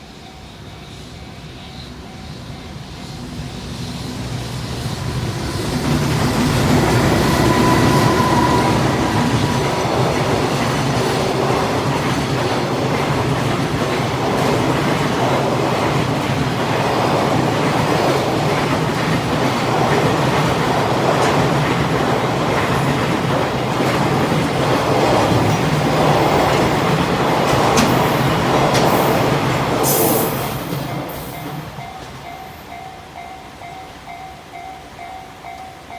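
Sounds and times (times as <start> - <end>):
train wheels rumbling on rails: 0.0 - 35.9.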